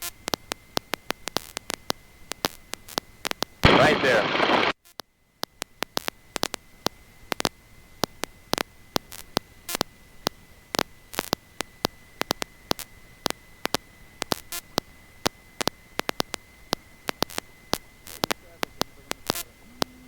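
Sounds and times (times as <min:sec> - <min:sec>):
crackling static clicks: 0:00.0 - 0:20.0
steady high whine: 0:00.1 - 0:04.8, 0:05.4 - 0:20.0
even hiss: 0:03.6 - 0:04.7.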